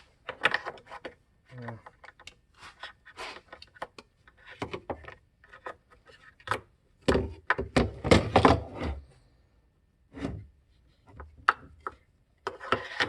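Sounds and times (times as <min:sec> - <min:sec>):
plastic parts clicking and scraping: 0:00.2 - 0:06.7, 0:11.1 - 0:13.0.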